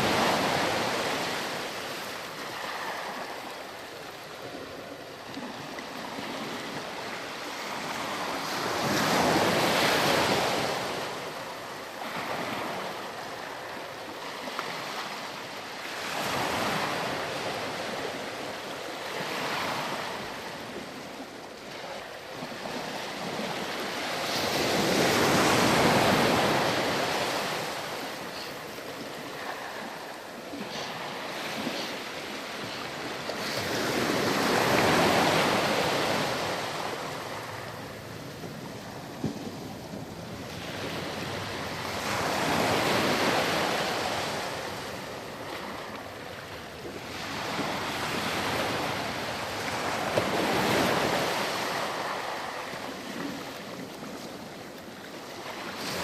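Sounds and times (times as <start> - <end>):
ocean waves breaking on beach: 0.0 - 56.0.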